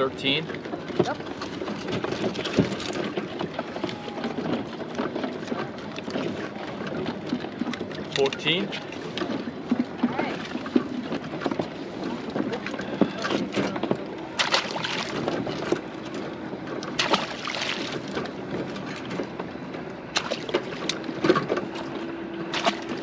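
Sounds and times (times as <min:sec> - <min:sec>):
wind on microphone: 0:00.9 - 0:07.3.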